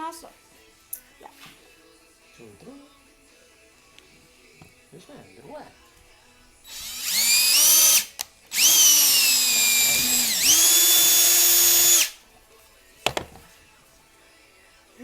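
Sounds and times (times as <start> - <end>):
hammer drill boring into wood: 6.7 - 12.2.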